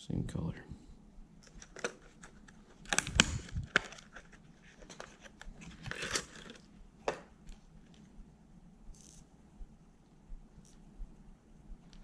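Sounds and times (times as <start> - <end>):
plastic packaging clicks and taps: 1.4 - 4.2
plastic packaging crinkling: 1.5 - 6.7.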